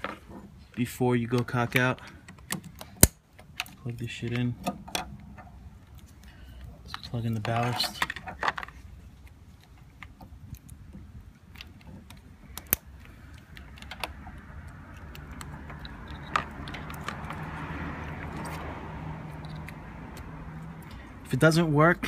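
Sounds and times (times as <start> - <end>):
plastic connectors clicking: 6.9 - 18.6
plastic connector snapping: 11.5 - 14.2.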